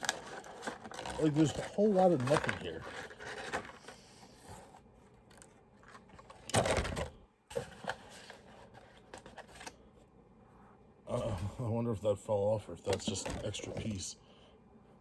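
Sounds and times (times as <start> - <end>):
plastic packaging rustling: 0.0 - 9.8.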